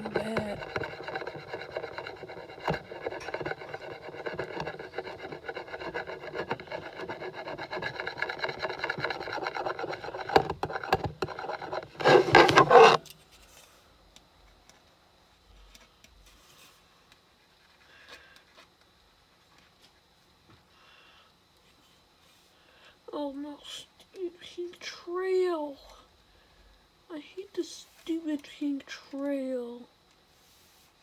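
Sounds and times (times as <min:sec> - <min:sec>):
marker pen rubbing on plastic: 0:00.0 - 0:13.0.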